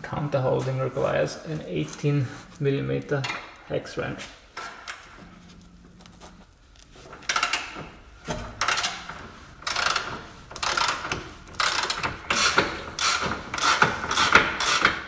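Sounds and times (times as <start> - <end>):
socket ratchet clicking: 9.7 - 15.0.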